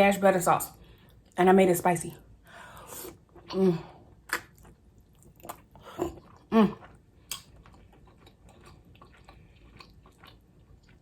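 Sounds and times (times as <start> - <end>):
chewing and mouth sounds: 4.2 - 11.0.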